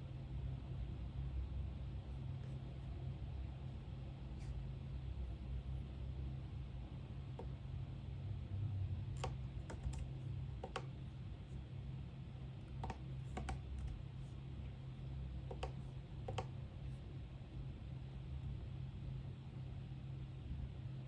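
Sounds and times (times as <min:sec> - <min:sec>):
steady low hum: 0:00.0 - 0:21.0
computer keyboard keystrokes: 0:09.1 - 0:11.0, 0:12.7 - 0:14.0, 0:15.5 - 0:16.5.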